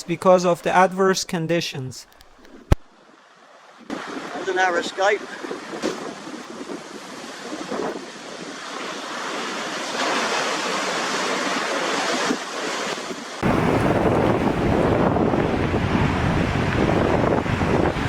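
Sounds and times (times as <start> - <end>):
storm wind and surf: 2.3 - 18.0
wind buffeting microphone: 3.9 - 8.9, 13.4 - 18.0.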